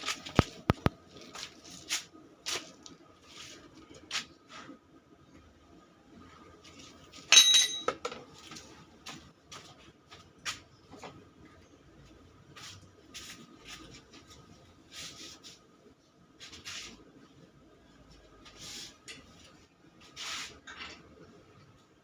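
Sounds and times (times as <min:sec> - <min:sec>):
metal tools clinking and scraping: 0:07.2 - 0:08.4, 0:20.6 - 0:21.1
loud metal clang: 0:07.3 - 0:08.0.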